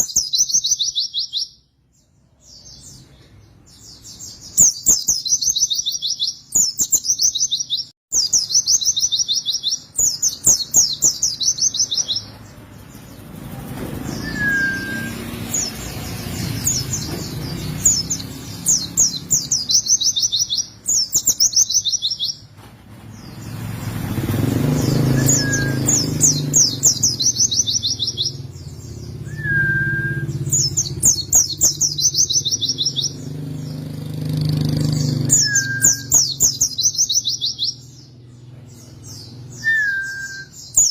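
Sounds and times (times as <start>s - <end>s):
bird singing rolling trills: 0.0s - 22.5s, 23.1s - 40.9s
low engine rumble: 11.3s - 19.7s
bird downslurred whistles: 14.2s - 15.3s, 25.0s - 26.4s, 29.2s - 30.7s, 35.3s - 36.3s, 39.6s - 40.9s.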